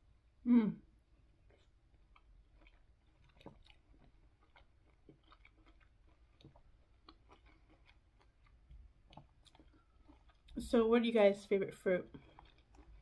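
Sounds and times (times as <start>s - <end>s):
person chewing juicy fruit: 0.8s - 13.0s.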